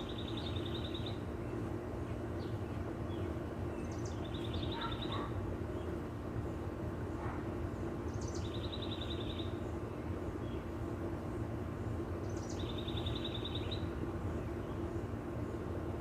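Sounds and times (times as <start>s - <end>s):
songbird trilling: 0.0s - 1.6s, 2.4s - 5.4s, 8.1s - 9.7s, 12.2s - 13.9s.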